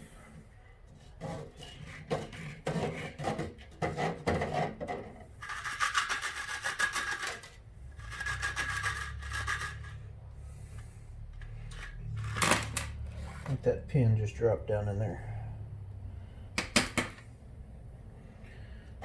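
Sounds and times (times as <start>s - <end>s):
metal parts clicking and clinking: 5.4s - 10.0s
metal parts rattling and scraping: 5.4s - 10.1s, 11.3s - 13.6s.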